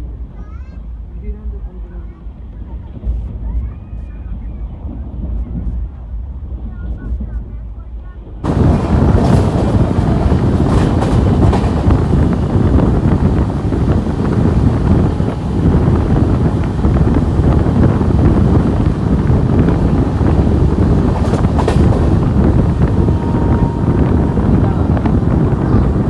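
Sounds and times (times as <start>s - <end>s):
passenger train rumbling: 0.0s - 26.0s
wind buffeting microphone: 8.2s - 26.0s.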